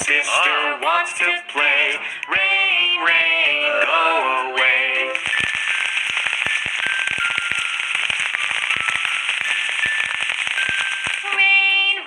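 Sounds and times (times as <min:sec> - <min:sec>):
falling rain hiss: 0:05.2 - 0:11.6
raindrop clicks: 0:05.2 - 0:11.6.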